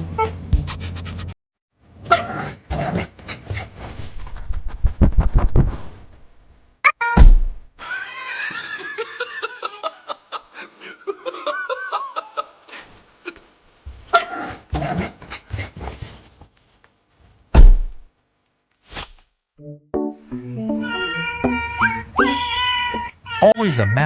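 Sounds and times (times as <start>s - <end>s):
loud thump: 7.2s - 7.7s, 17.6s - 18.0s
person laughing: 7.8s - 13.4s.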